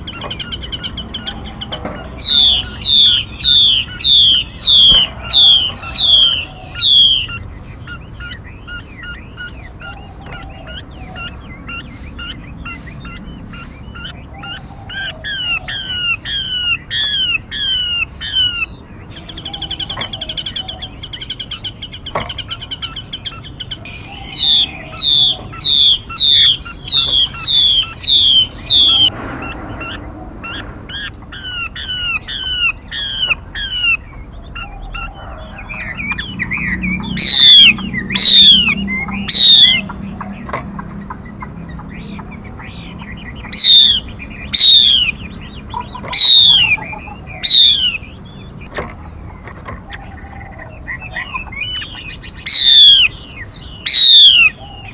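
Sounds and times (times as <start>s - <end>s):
loud downward-sweeping bird whistles: 0.0s - 7.5s, 23.8s - 39.9s, 42.0s - 45.4s, 46.2s - 48.0s, 51.3s - 54.9s
bird chirping: 0.0s - 54.9s
bird rattling trill: 2.0s - 7.4s, 23.8s - 29.1s.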